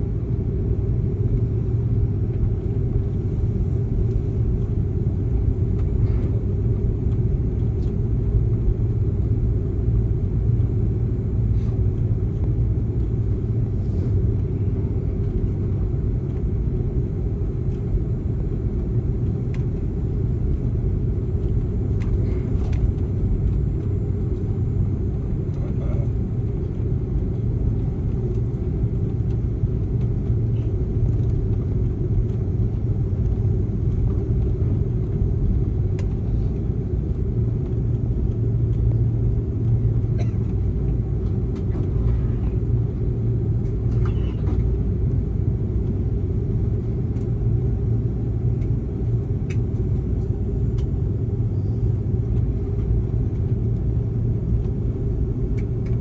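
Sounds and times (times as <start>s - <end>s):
airliner engines rumbling: 0.0s - 56.0s.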